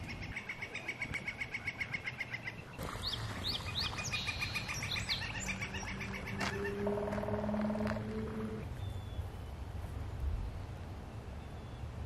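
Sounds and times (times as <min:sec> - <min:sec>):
woodpecker long call: 0:04.3 - 0:08.7.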